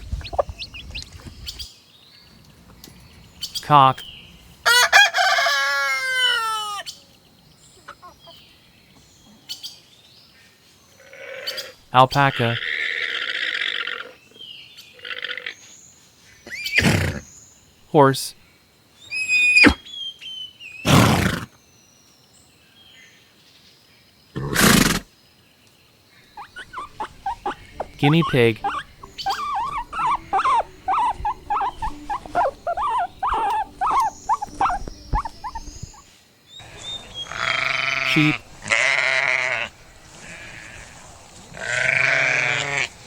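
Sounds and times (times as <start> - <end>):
rooster crowing: 4.6 - 6.9, 28.6 - 35.6
horse snorting: 20.9 - 21.5, 24.4 - 25.1, 26.5 - 36.0.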